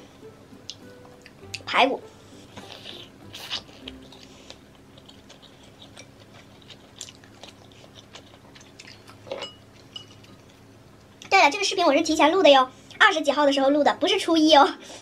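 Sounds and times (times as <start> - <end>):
person chewing with wet smacks: 2.6 - 11.3.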